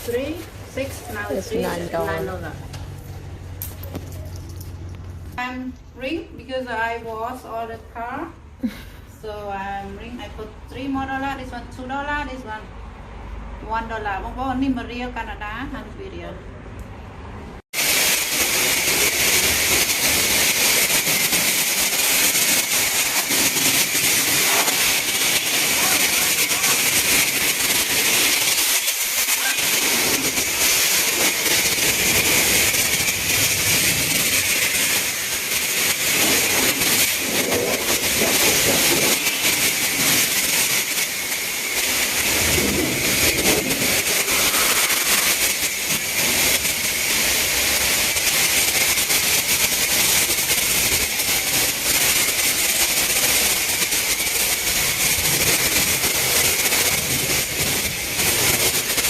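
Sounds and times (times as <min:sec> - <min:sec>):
high-pressure water spraying: 0:00.0 - 0:04.8, 0:17.7 - 0:59.0.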